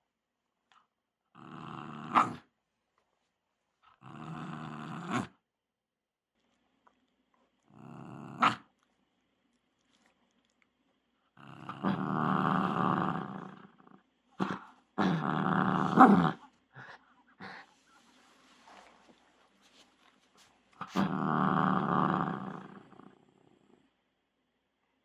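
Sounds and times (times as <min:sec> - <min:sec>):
dog growling: 0:01.4 - 0:02.4, 0:04.0 - 0:05.3, 0:07.6 - 0:08.7, 0:11.4 - 0:17.7, 0:20.8 - 0:23.9.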